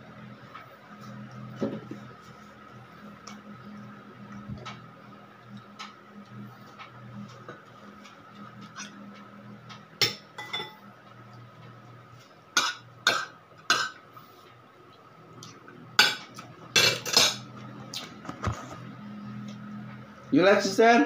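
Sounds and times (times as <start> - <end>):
faint steady hum: 0.0 - 21.0
cutlery clinking on plates: 10.0 - 10.8.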